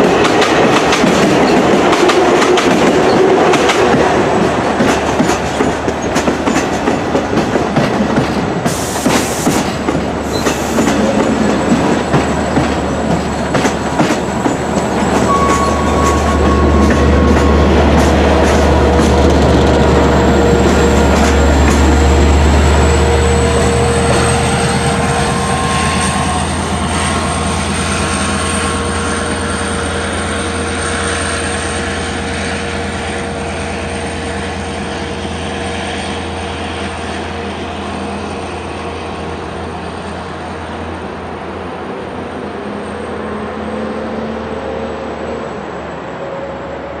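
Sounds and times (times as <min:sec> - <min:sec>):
train passing with low drone: 0:00.0 - 0:47.0.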